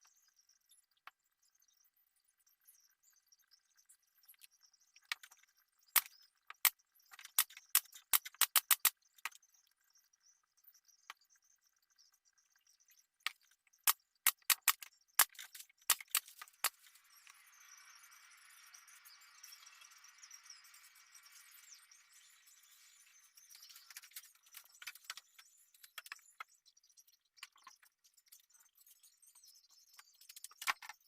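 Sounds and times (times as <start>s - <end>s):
sharp clicks and taps: 6.0s - 9.4s, 14.3s - 16.8s.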